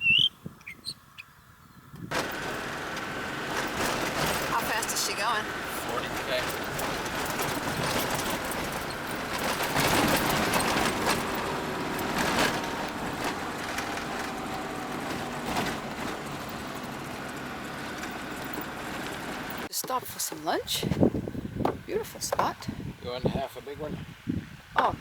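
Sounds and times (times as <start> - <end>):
engine and road noise: 0.0 - 25.0
faint whining tones: 1.7 - 19.7
knocks and rattles: 2.1 - 22.7.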